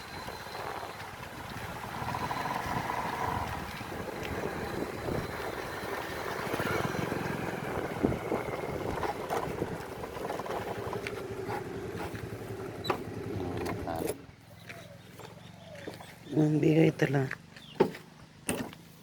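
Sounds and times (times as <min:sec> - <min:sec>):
wind noise: 0:00.0 - 0:11.0
engine running: 0:00.0 - 0:19.0.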